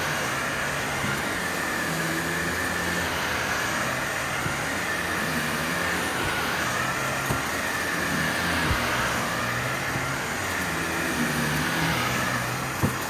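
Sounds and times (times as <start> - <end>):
vacuum cleaner running: 0.0 - 13.0
short knocks: 12.8 - 13.0.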